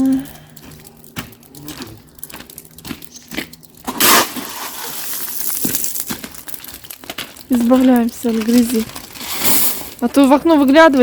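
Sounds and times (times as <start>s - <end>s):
rustling hiss of gravel: 0.0s - 10.8s
gravel thrown down: 1.1s - 10.2s
shovel scraping gravel: 3.8s - 6.1s, 8.6s - 10.0s.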